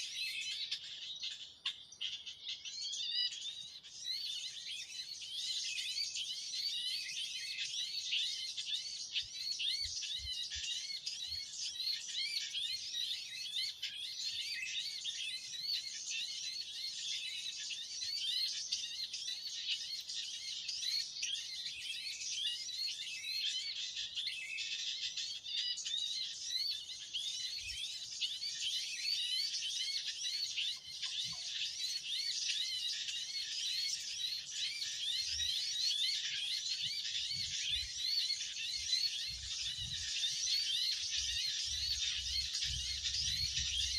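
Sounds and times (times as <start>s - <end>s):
small birds chirping: 0.0s - 43.9s.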